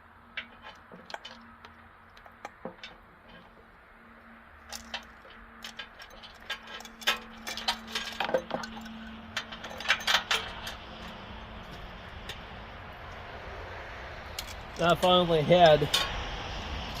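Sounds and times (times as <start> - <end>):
saw chain links clinking: 4.6 - 12.5.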